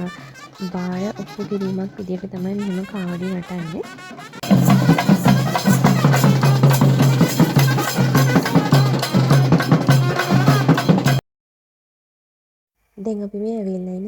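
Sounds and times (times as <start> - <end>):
fast rhythmic drumming: 0.0 - 11.2.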